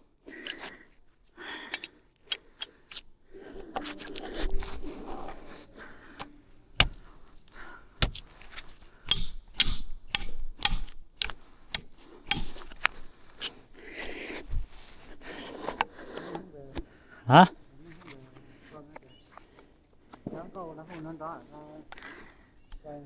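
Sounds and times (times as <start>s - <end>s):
sharp knocks and clicks: 6.2s - 13.6s.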